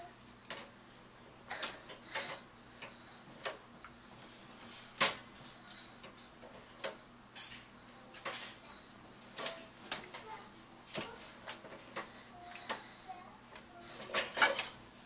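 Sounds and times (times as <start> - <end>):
dishes clicking and clinking: 13.6 - 14.8.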